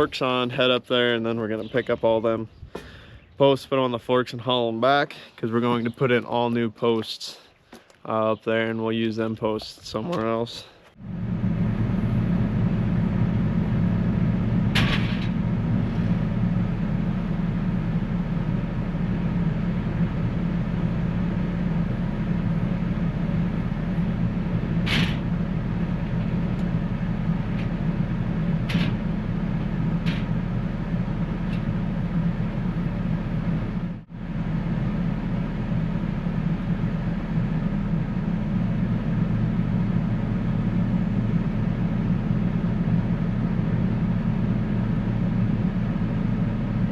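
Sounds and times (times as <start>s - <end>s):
loader engine running: 0.0s - 7.1s, 7.7s - 46.9s
metallic clanks: 14.7s - 16.1s.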